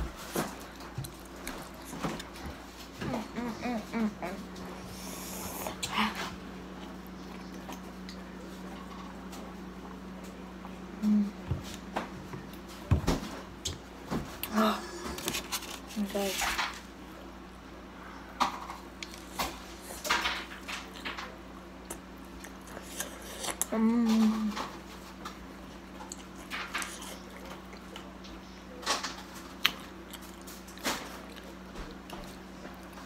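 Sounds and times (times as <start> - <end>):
biting and chewing: 0.0 - 4.8, 18.7 - 33.0
person humming: 3.0 - 6.1, 11.0 - 11.5, 14.4 - 15.3, 23.7 - 24.6.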